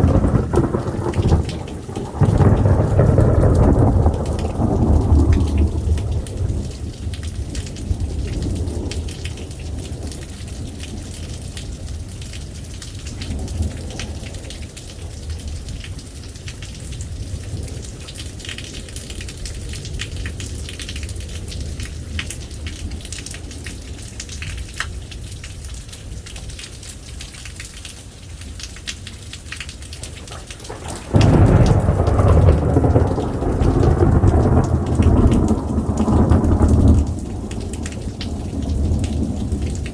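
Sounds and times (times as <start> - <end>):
loud peal of thunder: 0.0 - 6.9, 30.0 - 39.9
thunder rumbling: 0.0 - 12.1, 29.7 - 39.9
steady rain: 0.0 - 39.9.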